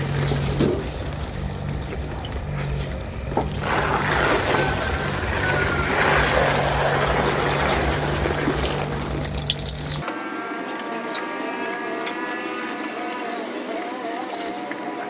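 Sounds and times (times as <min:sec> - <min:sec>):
steady low hum: 0:00.0 - 0:10.0
water gushing and splashing: 0:00.0 - 0:10.0.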